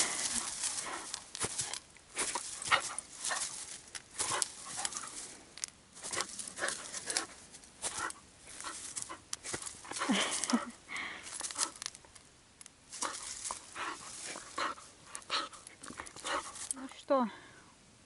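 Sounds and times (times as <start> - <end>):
puppy huffing breaths: 13.0 - 16.7.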